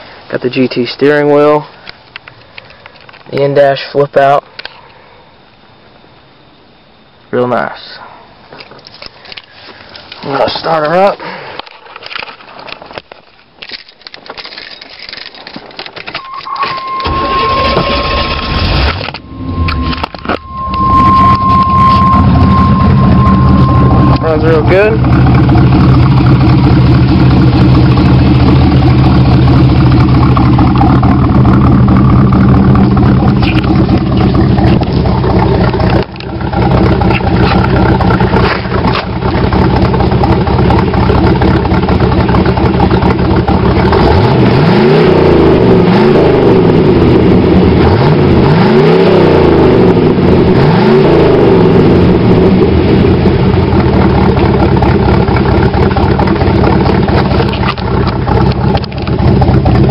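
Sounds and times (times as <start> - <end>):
car engine idling and revving: 14.5 - 59.9.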